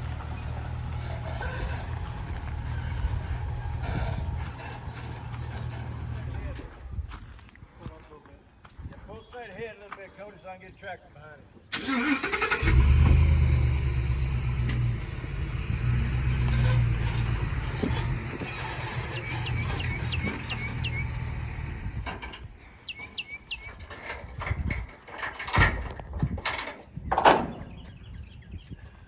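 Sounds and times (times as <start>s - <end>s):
knocks and clunks: 0.0s - 7.2s, 12.7s - 22.5s
vehicle engine humming: 0.0s - 7.2s, 11.8s - 22.3s
birds chirping: 0.0s - 7.7s, 12.4s - 24.0s.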